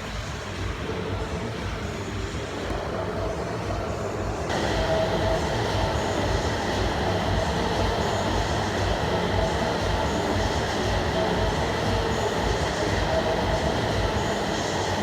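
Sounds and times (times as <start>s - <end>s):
transit vehicle ride rumble: 0.0s - 15.0s.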